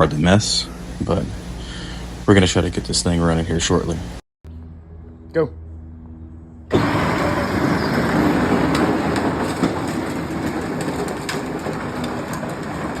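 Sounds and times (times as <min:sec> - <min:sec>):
car engine running rough: 0:06.7 - 0:13.0.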